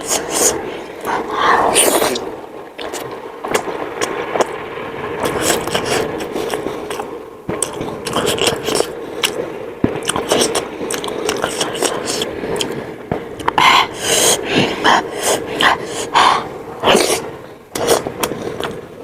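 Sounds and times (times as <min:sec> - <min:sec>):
chewing: 0:10.0 - 0:12.8, 0:16.9 - 0:18.8.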